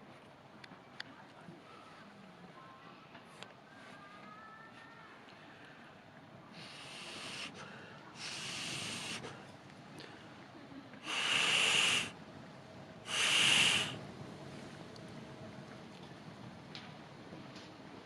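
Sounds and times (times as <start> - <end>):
air blown into campfire: 6.5 - 9.4, 11.0 - 12.2, 13.0 - 14.0.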